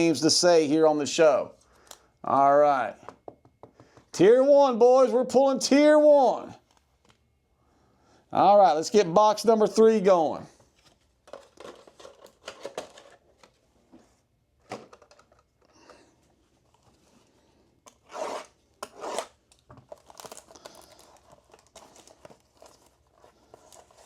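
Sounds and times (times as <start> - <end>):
plastic wrap tearing: 17.9 - 24.0
wrapper crinkling: 19.2 - 24.0.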